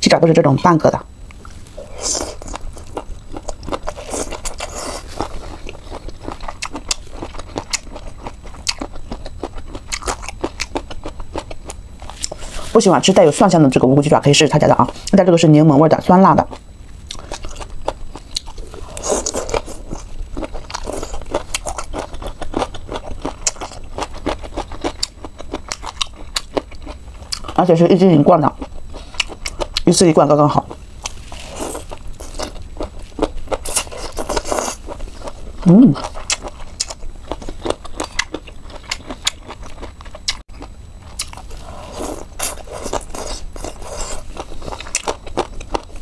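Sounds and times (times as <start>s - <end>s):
chewing with sharp clicks: 2.4s - 12.4s, 16.5s - 18.6s, 20.4s - 27.6s, 28.7s - 29.8s, 36.0s - 41.4s, 42.5s - 46.0s.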